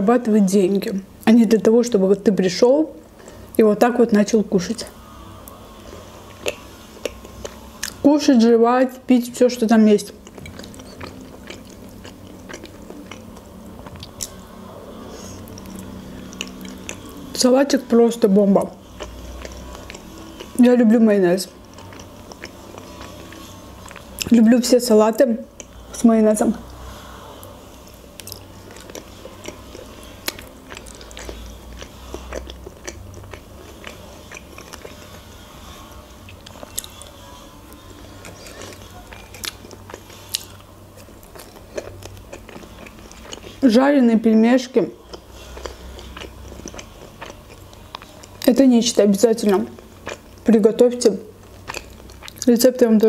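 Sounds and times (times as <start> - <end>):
faint steady hum: 0.0 - 53.0
chewing salad: 3.2 - 8.6, 9.2 - 53.0
wet chewing mouth clicks: 10.2 - 14.4, 28.2 - 35.2.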